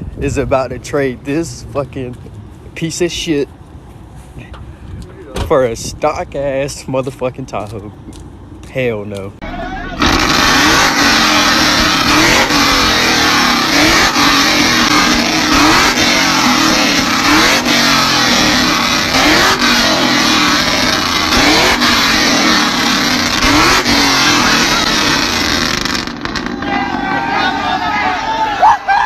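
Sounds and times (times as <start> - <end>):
pickup truck engine revving: 9.4 - 28.4.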